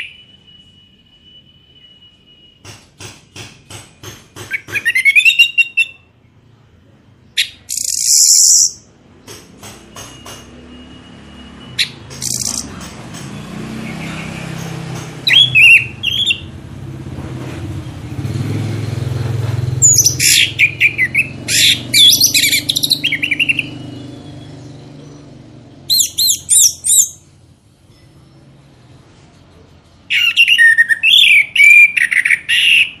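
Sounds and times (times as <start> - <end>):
songbird chirping and whistling: 4.5 - 6.1, 7.2 - 8.9, 11.7 - 12.8, 15.2 - 16.6, 19.8 - 25.3, 25.9 - 27.3, 30.1 - 33.0.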